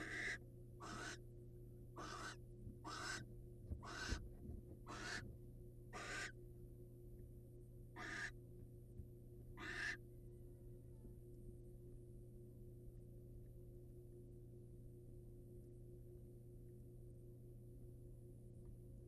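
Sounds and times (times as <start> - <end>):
barn owl hissing screech: 0.0 - 1.2, 2.0 - 3.2, 3.8 - 4.1, 4.9 - 5.2, 6.0 - 6.3, 8.0 - 8.3, 9.6 - 10.0
steady low hum: 0.0 - 19.0.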